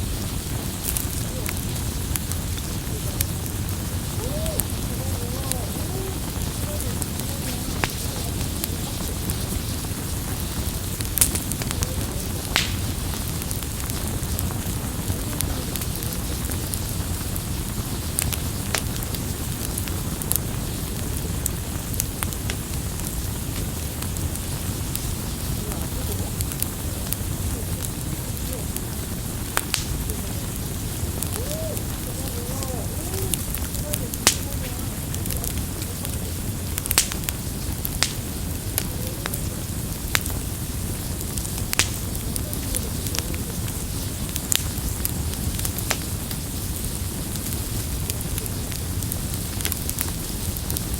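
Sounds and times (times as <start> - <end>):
campfire flames rumbling: 0.0 - 50.9
wood crackling and popping: 0.0 - 50.9
loud wood snaps: 11.1 - 14.4, 29.6 - 30.0, 36.8 - 37.3, 38.0 - 38.3, 41.7 - 42.1.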